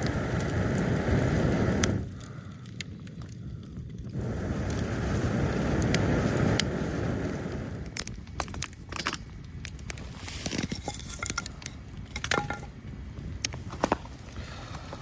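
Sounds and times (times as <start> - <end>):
low rumbling: 0.0 - 8.4
small objects clicking and knocking: 7.9 - 12.8.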